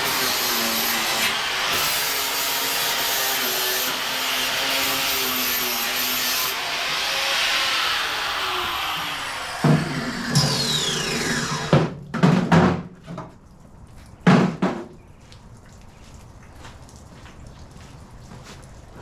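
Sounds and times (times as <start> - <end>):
power tool grinding: 0.0 - 11.9
sharp knocks: 9.6 - 13.3.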